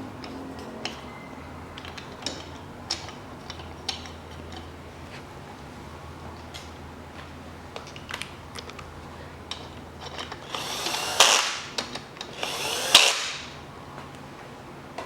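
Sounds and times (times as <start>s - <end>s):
metal parts clicking: 9.5s - 13.5s
cordless power tool bursts: 10.3s - 13.6s.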